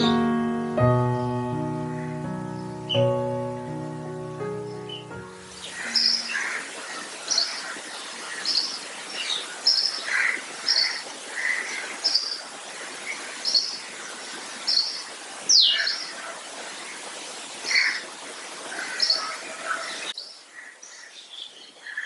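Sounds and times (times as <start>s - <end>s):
steady background hiss: 0.0s - 22.0s
small birds chirping: 4.6s - 18.1s.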